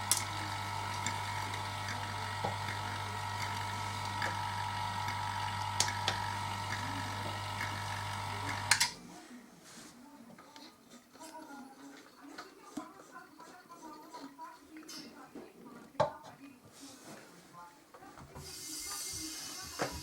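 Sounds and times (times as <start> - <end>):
refrigerator compressor humming: 0.0 - 8.8.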